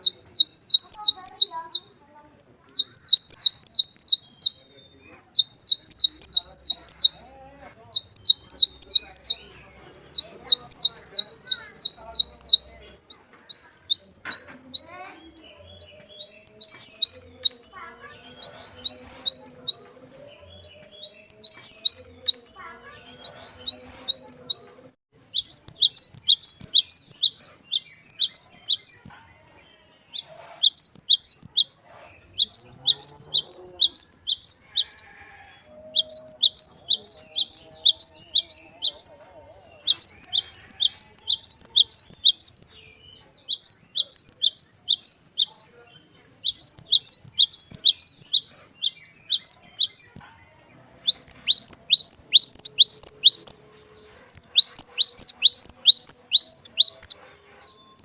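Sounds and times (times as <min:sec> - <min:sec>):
tit singing high clear notes: 0:00.0 - 0:02.0, 0:05.4 - 0:07.3, 0:08.0 - 0:29.1, 0:32.4 - 0:35.3, 0:35.9 - 0:42.7.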